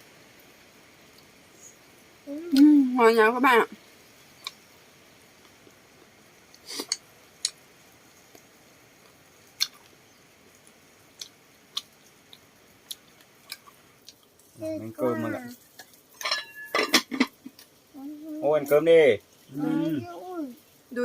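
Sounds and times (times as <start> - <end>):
people chewing: 8.3 - 10.0, 10.6 - 14.5.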